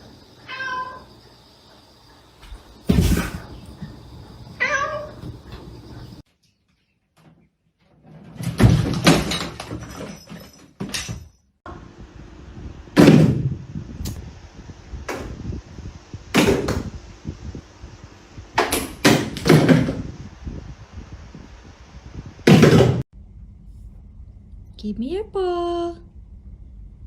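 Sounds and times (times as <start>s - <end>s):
sharp knocks and bangs: 2.8s - 3.7s, 22.5s - 23.0s.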